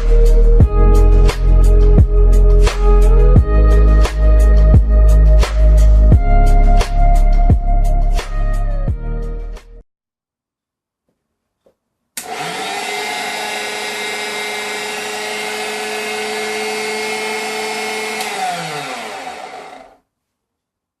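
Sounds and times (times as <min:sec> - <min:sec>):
meat grinder motor whining: 0:12.2 - 0:20.0.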